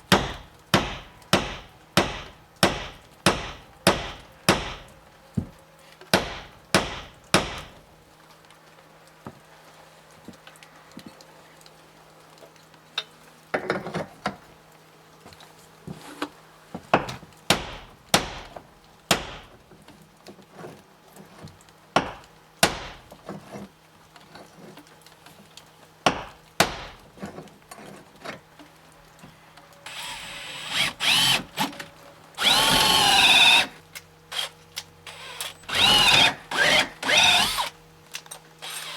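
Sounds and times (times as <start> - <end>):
power drill whining: 29.9 - 31.8, 32.4 - 37.7, 38.6 - 38.9.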